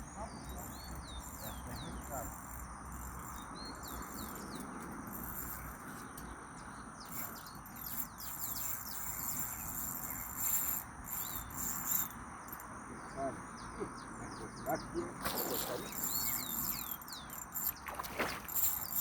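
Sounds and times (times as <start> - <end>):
bird chirps: 0.0 - 4.9, 5.5 - 19.0
insects trilling: 0.0 - 19.0.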